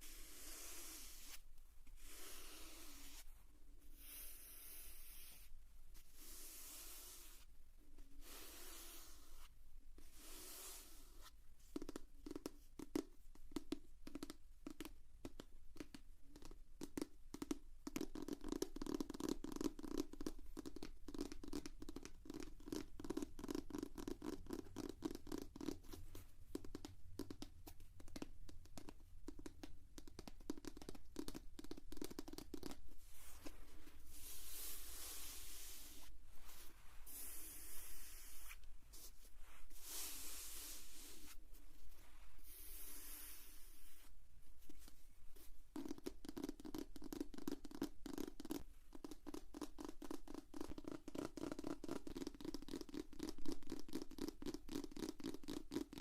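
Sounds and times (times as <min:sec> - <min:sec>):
fingers stroking a notebook: 0:00.0 - 0:07.5, 0:08.1 - 0:14.9, 0:15.8 - 0:56.0
rapid tapping on a notebook: 0:11.7 - 0:32.8, 0:45.8 - 0:56.0.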